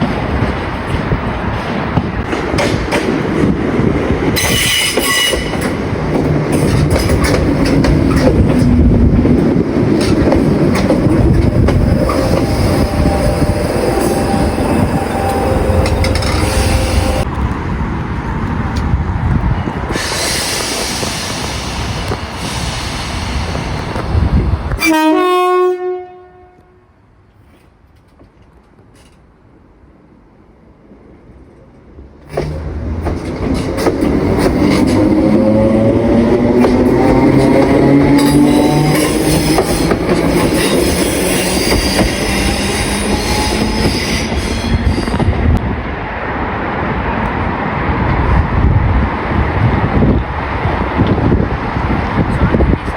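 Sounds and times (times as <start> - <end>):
wheels clicking over rail joints: 0.0 - 14.3, 32.2 - 43.6
train rumbling past: 0.0 - 52.9
hiss: 19.9 - 24.3.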